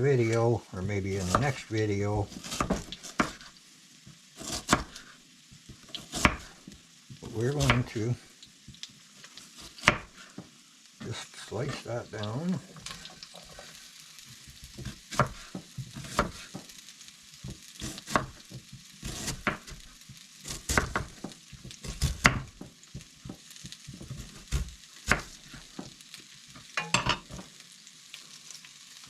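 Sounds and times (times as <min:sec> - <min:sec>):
food sizzling in a frying pan: 0:00.0 - 0:29.0
knife slicing onion: 0:01.1 - 0:01.6, 0:02.2 - 0:03.6, 0:04.4 - 0:07.9, 0:09.3 - 0:10.4, 0:14.4 - 0:16.8, 0:17.4 - 0:26.0.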